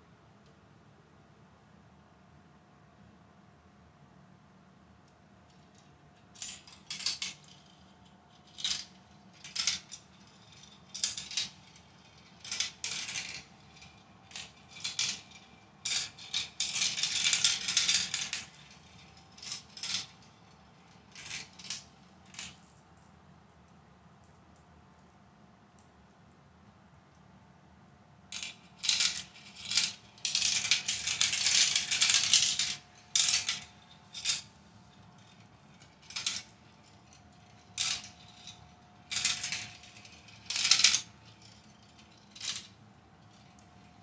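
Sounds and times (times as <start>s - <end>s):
marbles rattling through plastic track: 5.7s - 22.6s, 28.3s - 44.0s.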